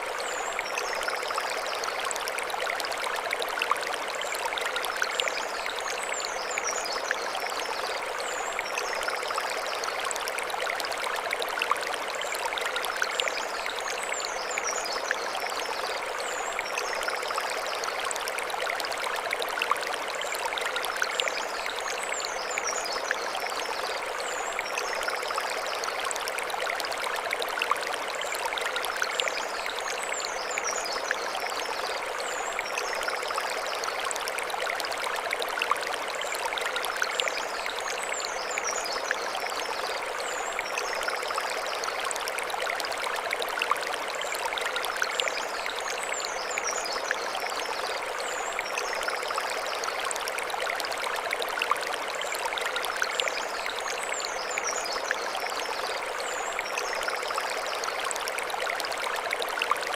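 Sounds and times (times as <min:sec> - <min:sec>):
stream running over stones: 0:00.0 - 0:59.9.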